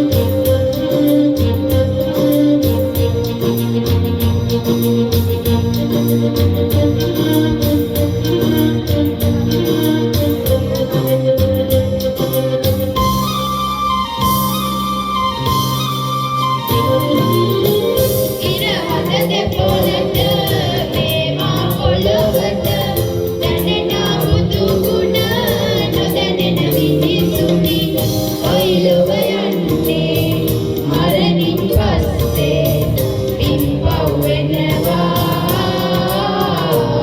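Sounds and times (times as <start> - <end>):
instrumental accompaniment: 0.0 - 37.0
group singing devotional song: 18.4 - 37.0.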